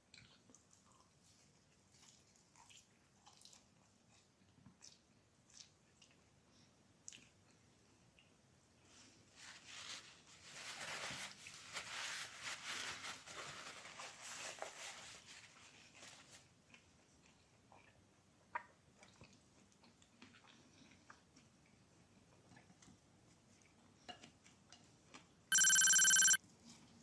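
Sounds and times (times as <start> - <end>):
food being chewed and crunched: 0.1 - 6.3.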